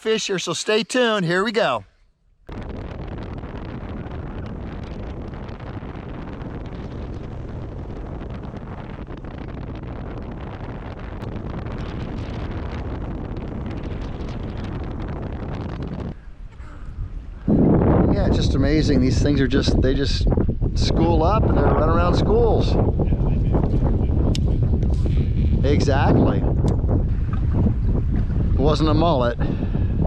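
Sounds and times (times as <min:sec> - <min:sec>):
wind buffeting microphone: 0:02.4 - 0:30.0
boat running at speed: 0:26.7 - 0:28.9.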